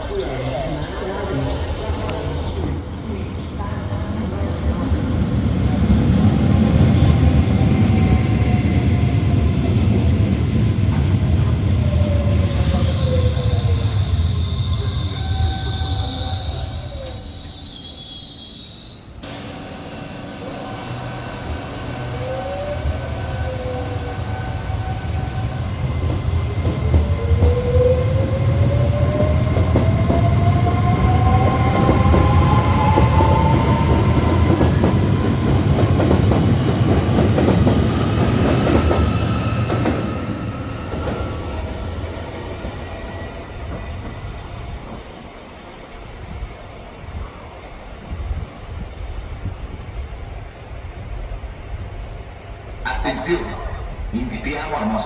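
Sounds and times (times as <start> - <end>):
train wheel rumble: 0.0 - 17.6, 19.2 - 55.0
train traction motors whining: 1.0 - 55.0
high squeal: 11.8 - 25.8.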